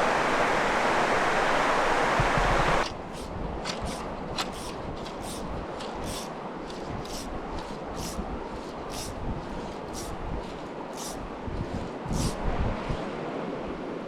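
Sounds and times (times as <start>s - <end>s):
river rushing: 0.0s - 4.4s.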